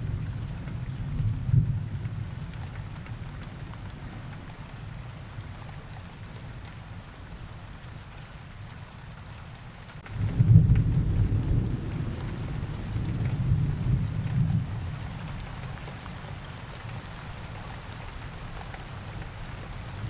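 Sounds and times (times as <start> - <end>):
steady rain falling: 0.0 - 20.0
thunder rumbling: 10.1 - 15.4.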